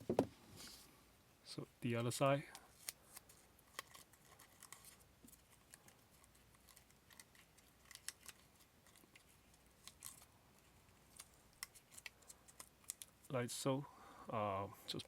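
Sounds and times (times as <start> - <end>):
masking tape crackling: 2.8 - 13.4.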